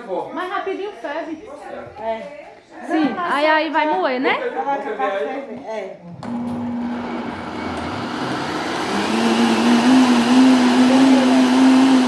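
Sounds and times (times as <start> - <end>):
electric blender running: 6.2 - 12.0.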